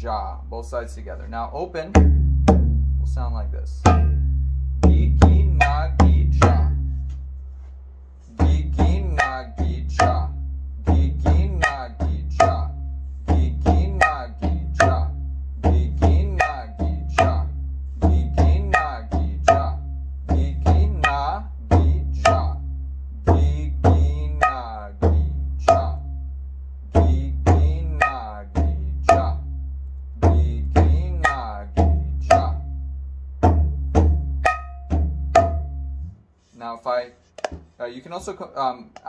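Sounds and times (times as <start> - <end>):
hand drum deep bass strokes: 1.9 - 7.4, 8.3 - 36.2
sharp ringing finger strokes: 27.9 - 28.4.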